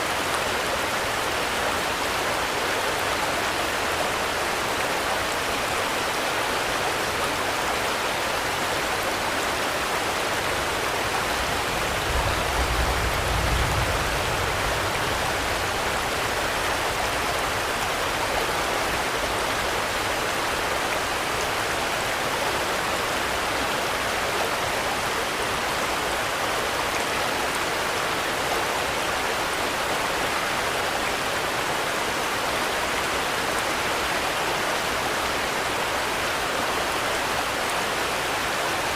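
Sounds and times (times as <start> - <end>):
dense rainfall: 0.0 - 38.9.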